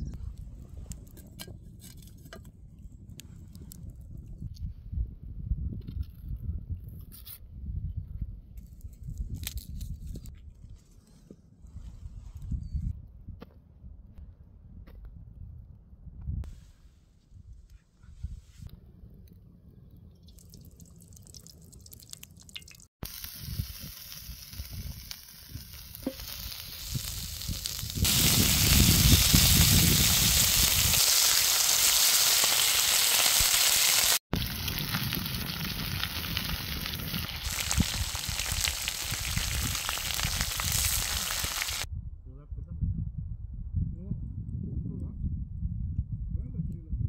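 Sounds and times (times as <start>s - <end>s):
food sizzling in a pan: 23.0s - 41.9s.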